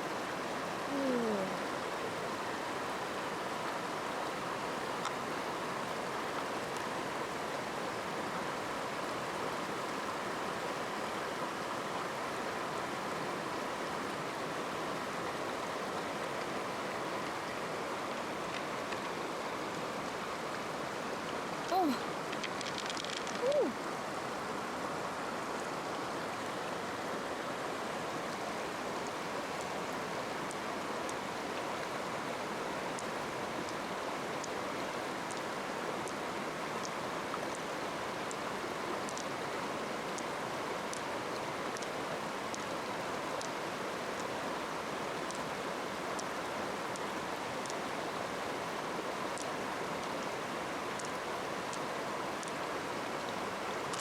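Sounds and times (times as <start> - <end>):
stream water rushing: 0.0 - 54.0
faint ticks: 5.0 - 5.2, 21.6 - 23.5, 35.3 - 36.2, 39.1 - 39.4, 40.9 - 41.1, 41.7 - 42.8, 43.4 - 43.6, 45.2 - 45.5, 46.2 - 47.8, 50.9 - 52.6.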